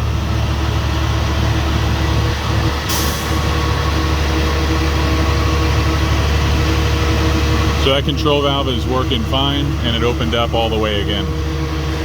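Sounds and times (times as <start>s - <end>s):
truck engine and fuel pump running: 0.0s - 12.0s.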